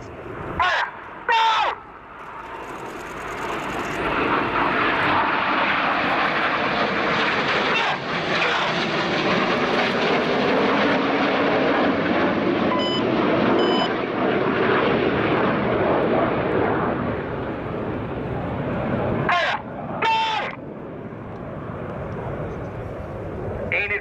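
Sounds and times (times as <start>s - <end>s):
jets flying past: 1.9s - 24.0s
short electronic beeps: 12.7s - 13.9s.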